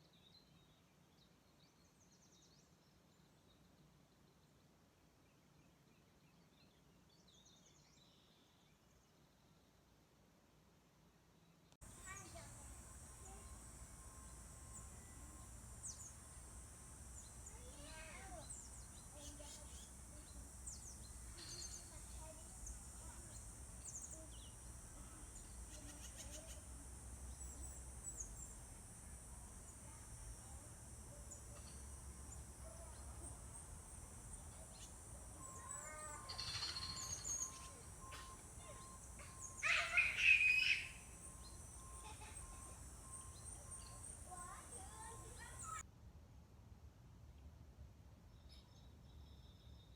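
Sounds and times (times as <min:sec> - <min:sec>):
wild birds chirping: 0:11.8 - 0:45.8
dense bird call: 0:34.4 - 0:45.8.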